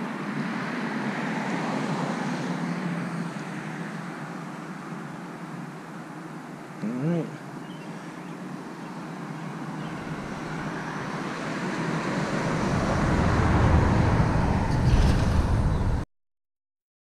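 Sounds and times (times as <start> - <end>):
motor vehicle approaching: 6.7 - 16.0.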